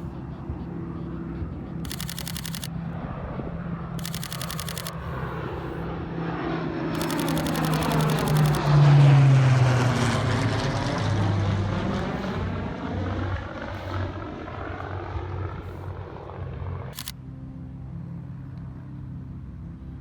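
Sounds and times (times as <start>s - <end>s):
propeller plane passing overhead: 0.0s - 20.0s
camera shutter burst: 1.8s - 2.7s, 4.0s - 5.0s, 7.0s - 8.6s, 17.0s - 17.2s.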